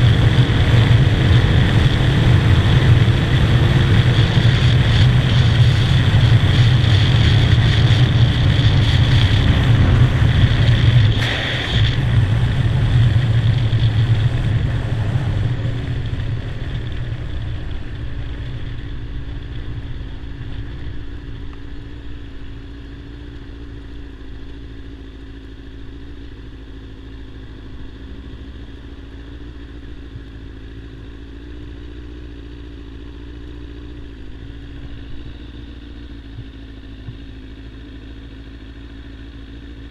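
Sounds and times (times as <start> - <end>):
wind noise: 0.0 - 21.8
motorcycle engine riding: 0.0 - 39.9.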